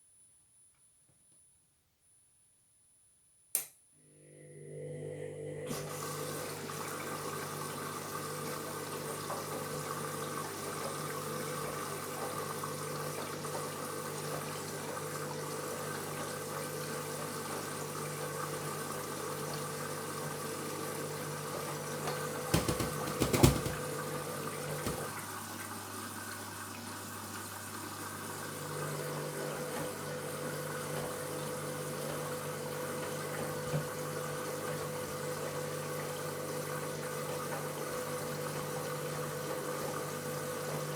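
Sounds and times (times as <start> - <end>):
washing machine motor humming: 4.2 - 25.6, 28.2 - 40.9
water hissing into washing machine: 5.7 - 40.9
knocks in washing machine: 22.4 - 25.1.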